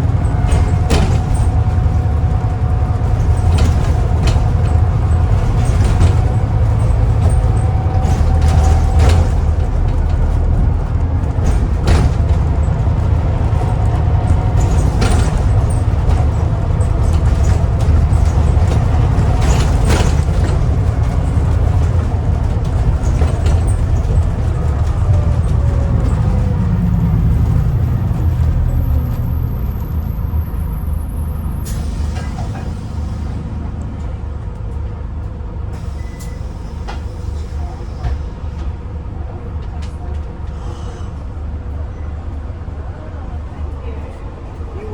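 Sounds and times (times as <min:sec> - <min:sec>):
interior rattles: 0:00.0 - 0:30.8
bus diesel engine rumble: 0:00.0 - 0:44.9.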